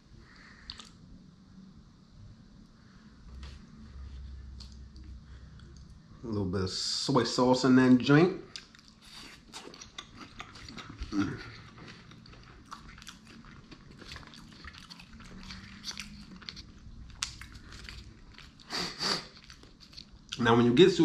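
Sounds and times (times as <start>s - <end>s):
breathing: 0.2s - 0.7s
wet chewing mouth clicks: 0.6s - 1.0s, 8.5s - 20.4s.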